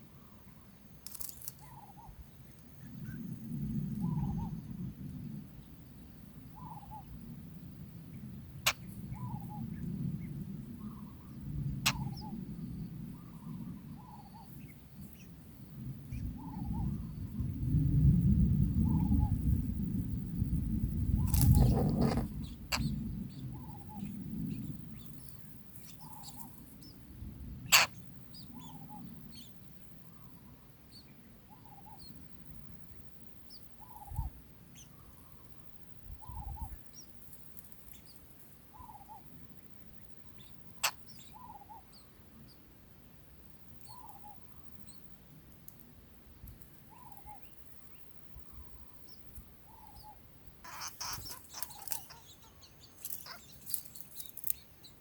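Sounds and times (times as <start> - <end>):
faint high bird chirps: 46.9 - 55.0.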